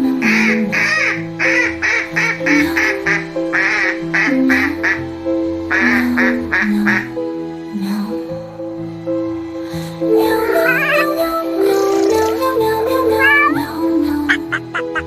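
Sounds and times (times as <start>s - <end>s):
background music: 0.0s - 15.0s
cartoon duckling quacking: 10.4s - 12.4s, 13.1s - 13.6s, 14.3s - 15.0s.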